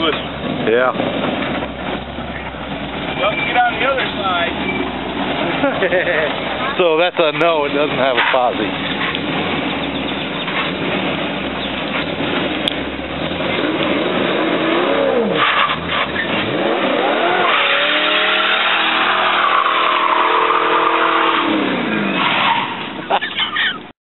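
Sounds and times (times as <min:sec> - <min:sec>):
engine revving: 0:00.0 - 0:22.6
tyre squeal: 0:02.3 - 0:05.1, 0:15.0 - 0:23.8.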